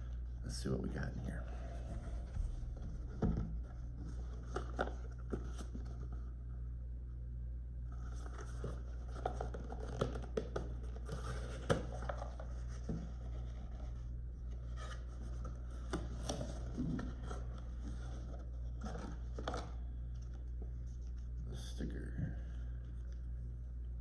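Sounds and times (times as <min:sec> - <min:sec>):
steady low hum: 0:00.0 - 0:24.0
cardboard and packaging rustling: 0:01.0 - 0:06.3, 0:07.9 - 0:21.4.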